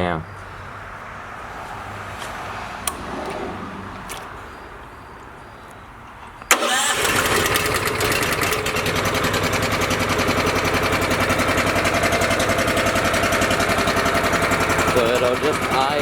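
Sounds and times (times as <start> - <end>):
petrol engine starting and idling: 6.1 - 16.0.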